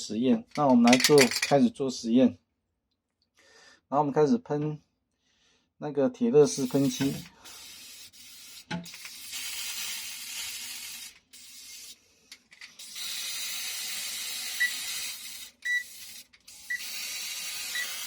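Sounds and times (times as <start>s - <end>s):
spray paint can hissing: 6.5s - 12.0s, 12.6s - 18.0s.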